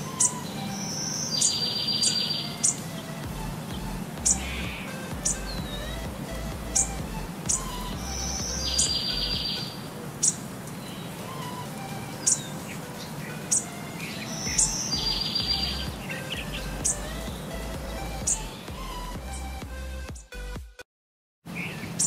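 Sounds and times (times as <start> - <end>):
rapid high bird trill: 0.0 - 19.5
bird chirping: 0.0 - 20.4, 21.5 - 22.0.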